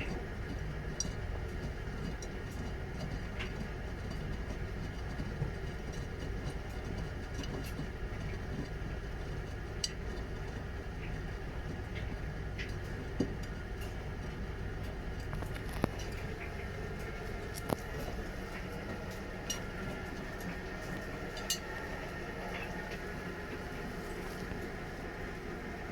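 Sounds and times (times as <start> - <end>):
washing machine running: 0.0 - 25.9.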